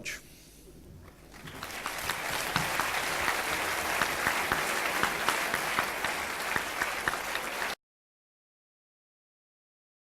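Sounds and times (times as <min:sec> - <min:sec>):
audience applauding: 0:01.1 - 0:07.8.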